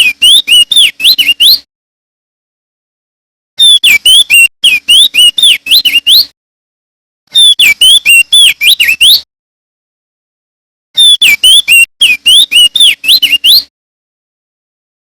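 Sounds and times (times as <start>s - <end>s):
bird singing whistled notes: 0.0s - 1.7s, 3.6s - 6.3s, 7.3s - 9.3s, 11.0s - 13.7s.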